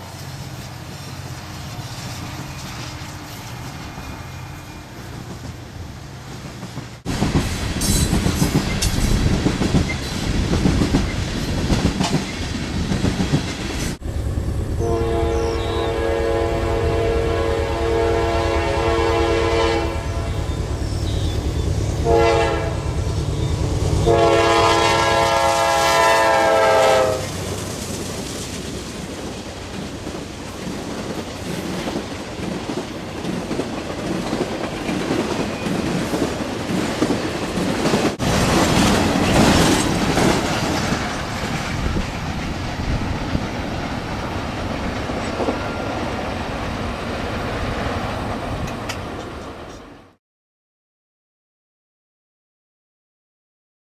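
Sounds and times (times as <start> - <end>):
train wheels clicking over rail joints: 5.0 - 14.0, 27.3 - 49.9
locomotive rumble: 6.5 - 49.9
multi-tone train horn: 14.6 - 27.4.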